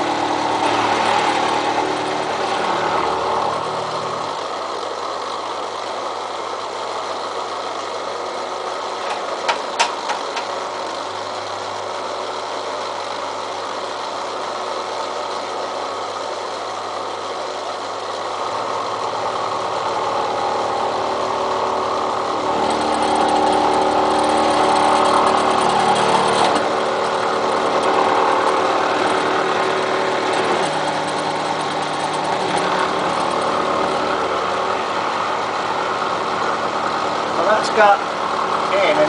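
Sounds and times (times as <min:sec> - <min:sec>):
cutter grinding into steel: 0:00.0 - 0:04.6, 0:19.9 - 0:35.1
milling machine motor hum: 0:00.0 - 0:39.0.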